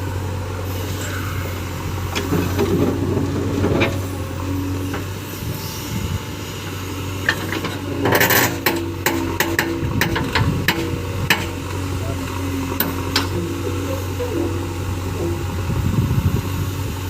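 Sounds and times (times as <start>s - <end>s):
diesel engine running: 0.0s - 17.0s
metallic knocks and clanks: 7.3s - 11.6s.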